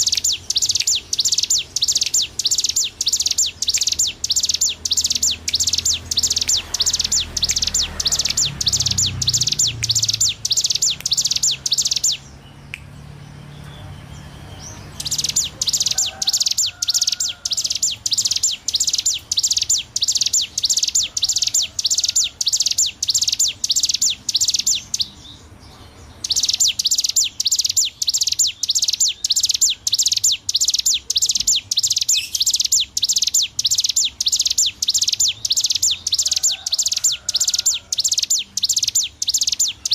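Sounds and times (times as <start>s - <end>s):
bird singing fast high notes: 0.0s - 12.7s.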